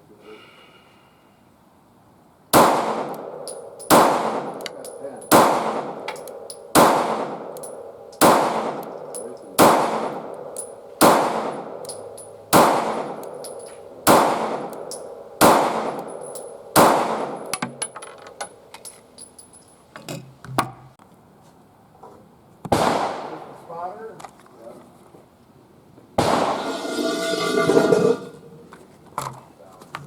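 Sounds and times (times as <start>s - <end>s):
pistol shots with echo: 2.5s - 17.6s, 22.7s - 23.6s, 26.2s - 26.6s.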